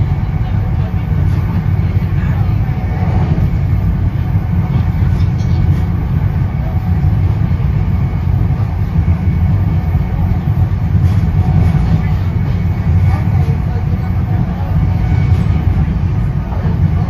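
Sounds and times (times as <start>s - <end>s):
train car rumbling on rails: 0.0s - 17.0s.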